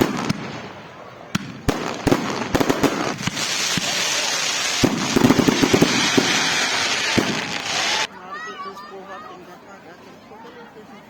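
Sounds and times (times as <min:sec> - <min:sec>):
hiss of flame: 0:03.1 - 0:08.1.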